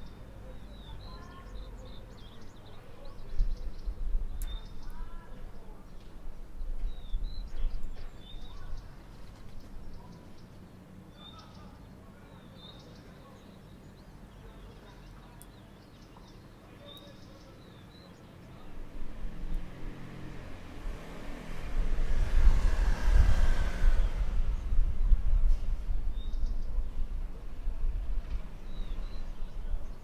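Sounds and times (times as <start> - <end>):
low outdoor rumble: 17.9 - 30.0.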